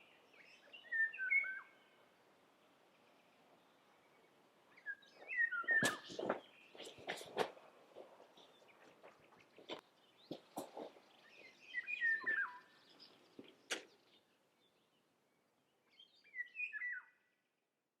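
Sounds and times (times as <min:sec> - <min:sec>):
songbird whistling: 0:00.7 - 0:01.8, 0:04.8 - 0:06.2, 0:11.6 - 0:12.8, 0:16.2 - 0:17.2.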